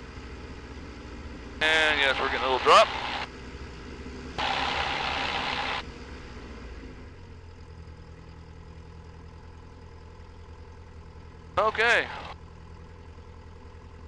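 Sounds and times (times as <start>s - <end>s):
intercom hiss: 1.6s - 3.3s, 11.6s - 12.4s
aircraft piston engine running: 1.6s - 6.3s, 11.6s - 12.4s.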